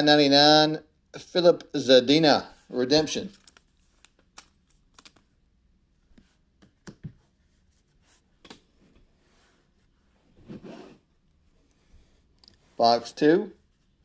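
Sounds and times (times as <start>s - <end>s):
trading cards clicking and rustling: 3.2s - 5.3s.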